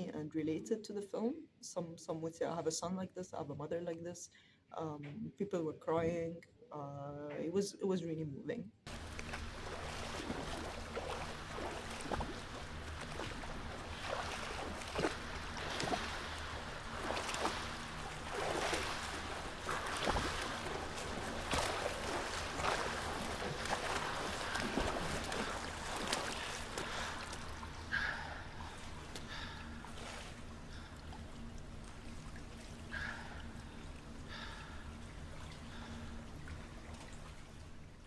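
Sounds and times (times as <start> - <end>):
steady low hum: 0.0 - 38.0
water splashing and sloshing: 8.8 - 38.0.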